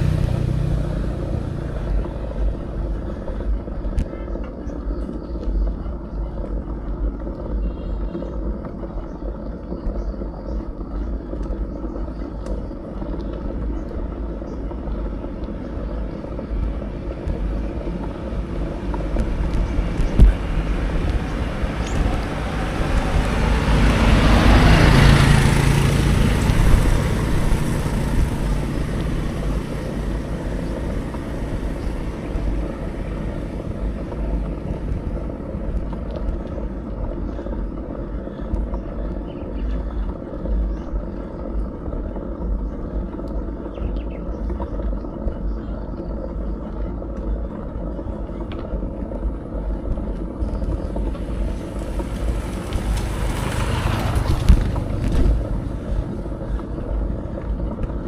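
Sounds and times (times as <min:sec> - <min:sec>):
vehicle passing: 0:00.0 - 0:03.7, 0:15.0 - 0:40.7, 0:50.4 - 0:58.0
wind and road noise: 0:00.0 - 0:58.0.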